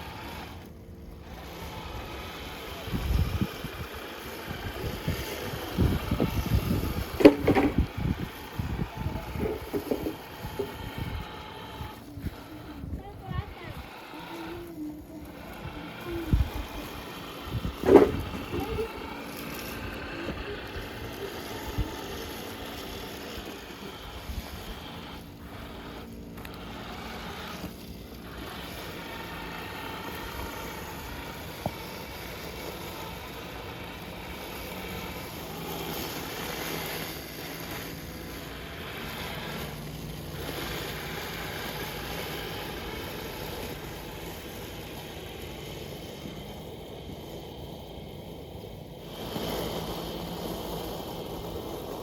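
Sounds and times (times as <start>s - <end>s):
wind buffeting microphone: 2.8s - 22.6s.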